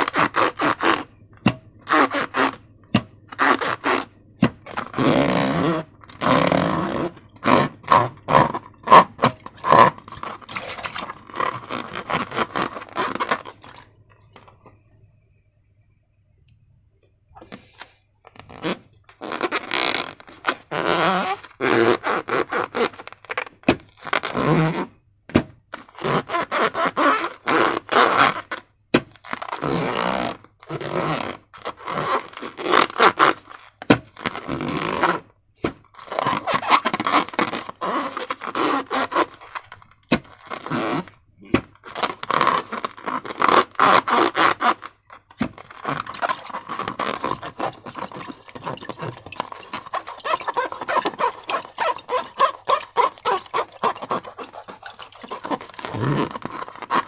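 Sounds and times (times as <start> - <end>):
slime squelching: 0.0 - 14.8, 35.6 - 57.0.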